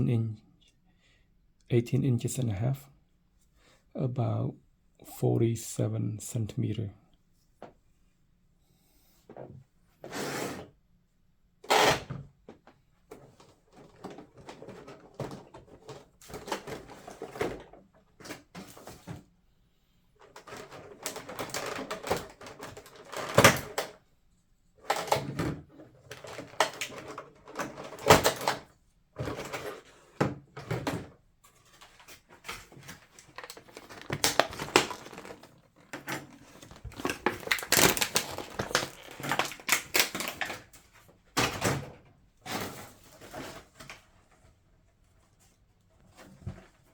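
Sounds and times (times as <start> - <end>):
hands handling plastic model parts: 31.4 - 41.0.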